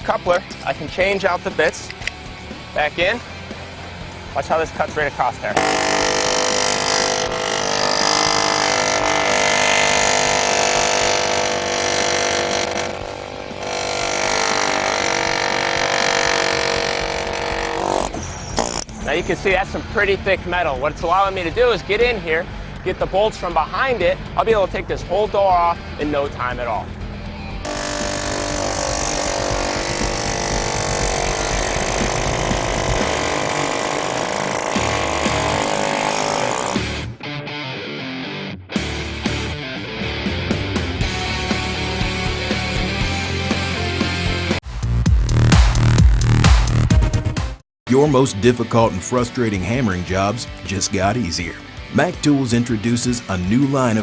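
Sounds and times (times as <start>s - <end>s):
air chisel hammering sheet metal: 5.6s - 18.0s, 27.7s - 36.8s.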